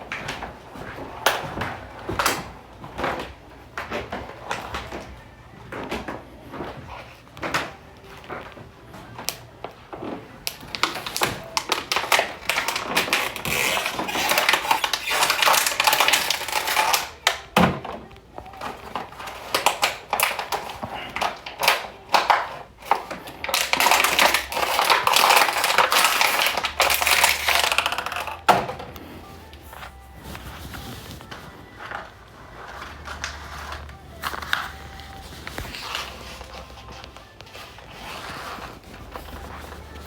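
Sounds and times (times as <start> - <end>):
plastic bottles crinkling: 0.0 - 40.0.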